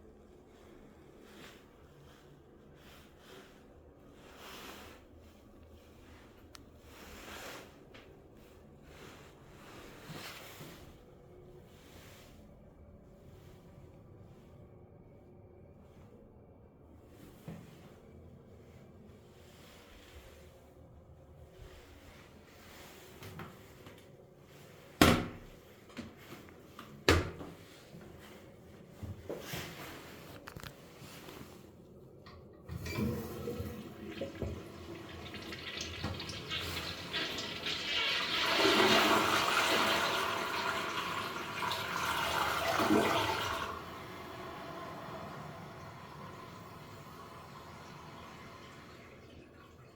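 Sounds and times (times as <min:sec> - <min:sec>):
toilet flushing: 0:32.6 - 0:49.9.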